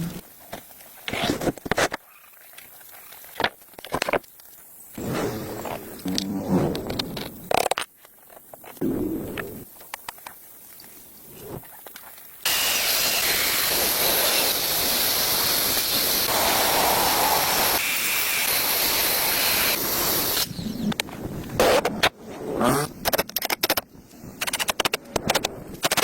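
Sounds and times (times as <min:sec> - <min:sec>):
loud steady hiss: 0:12.4 - 0:20.6.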